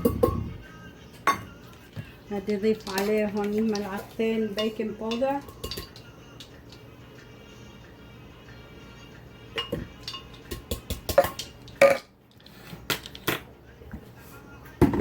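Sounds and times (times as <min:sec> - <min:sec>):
utensils and dishes clinking: 0:00.0 - 0:00.6, 0:01.2 - 0:07.0, 0:09.5 - 0:13.5.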